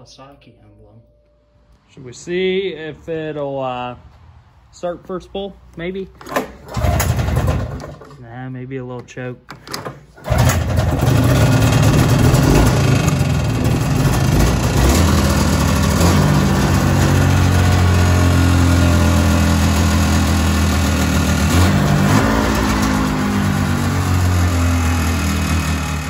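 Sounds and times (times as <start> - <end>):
two-stroke snowmobile engine idling: 10.2 - 26.0.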